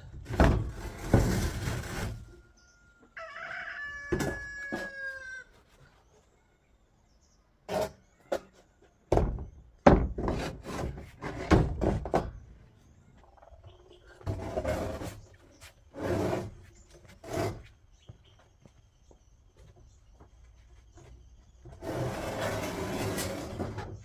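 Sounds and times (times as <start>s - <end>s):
rooster crowing: 2.5s - 5.6s
irregular knocks and thuds: 7.7s - 12.6s.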